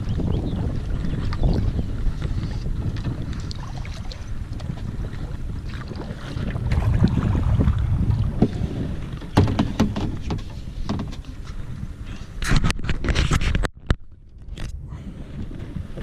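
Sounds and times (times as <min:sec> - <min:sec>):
wind buffeting microphone: 0:00.0 - 0:16.0
sharp knocks: 0:09.3 - 0:11.2.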